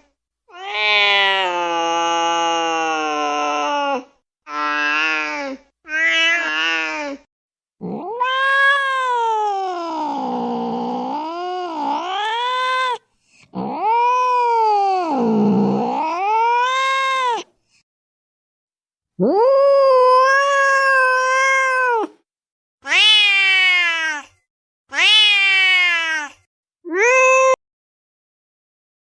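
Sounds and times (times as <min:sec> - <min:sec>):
cat yowling: 0:00.5 - 0:05.3, 0:05.9 - 0:07.0, 0:07.8 - 0:13.0, 0:13.6 - 0:17.5, 0:19.2 - 0:22.2, 0:22.8 - 0:24.3, 0:24.9 - 0:27.6.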